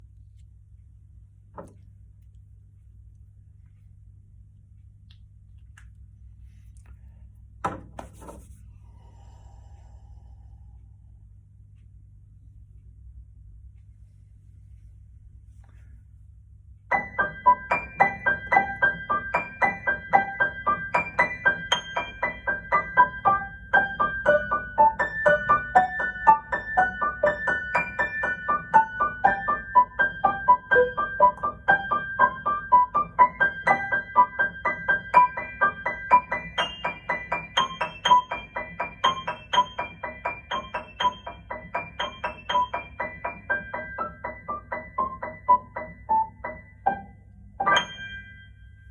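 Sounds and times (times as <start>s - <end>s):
piano improvisation: 16.9s - 48.9s.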